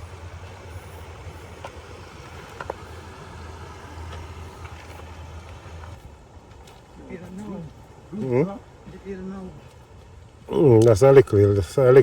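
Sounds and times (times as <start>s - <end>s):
engine idling hum: 0.0s - 12.0s
outdoor background noise: 0.0s - 12.0s.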